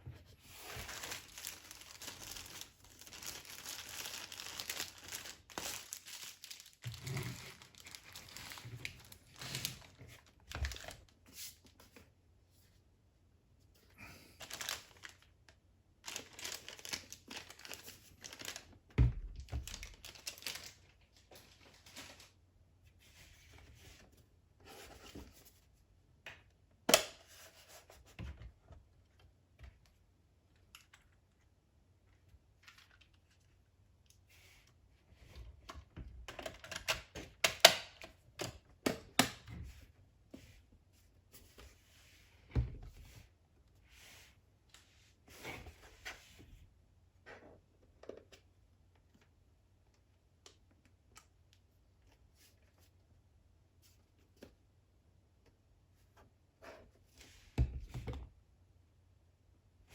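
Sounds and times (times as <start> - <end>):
plastic and paper rustling: 0.5 - 11.8, 14.4 - 15.4, 16.0 - 22.4.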